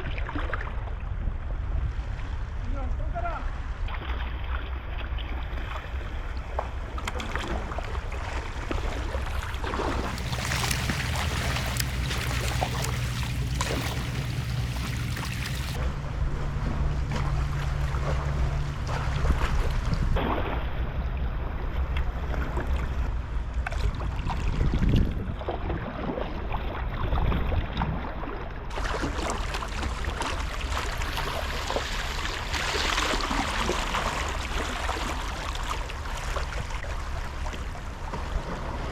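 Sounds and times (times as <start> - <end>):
sea water washing around kayak: 3.6 - 38.9
wind on microphone: 9.3 - 20.4, 21.0 - 28.3
steady low hum: 9.8 - 20.2.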